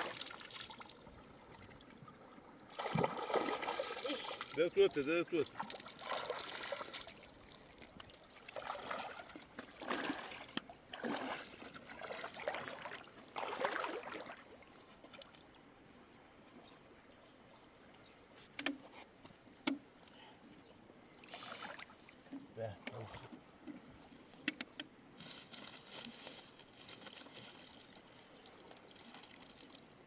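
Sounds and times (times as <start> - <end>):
river water trickling and splashing: 0.0 - 18.5, 19.4 - 30.0.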